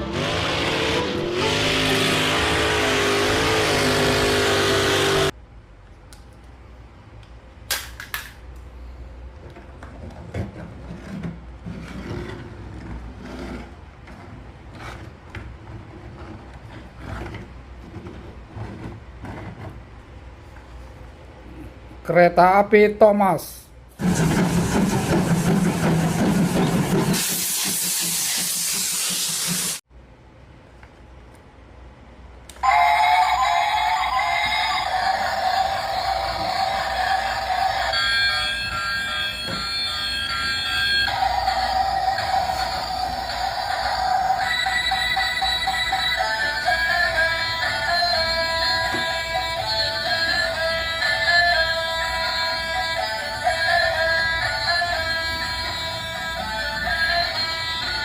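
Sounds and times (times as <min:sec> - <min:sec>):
electronic tune: 0:00.0 - 0:05.3, 0:32.6 - 0:58.0
toy train steam hiss: 0:27.0 - 0:29.8.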